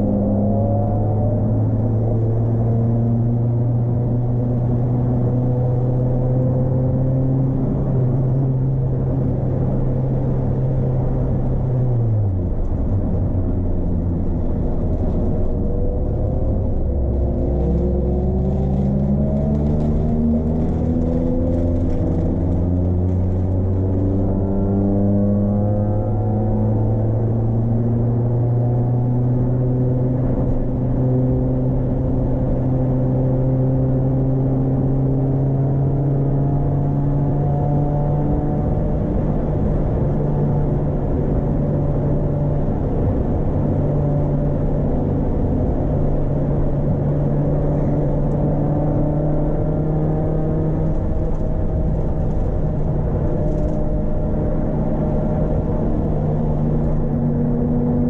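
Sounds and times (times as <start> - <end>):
road noise: 0.0 - 58.0
car engine pulling: 7.5 - 32.3.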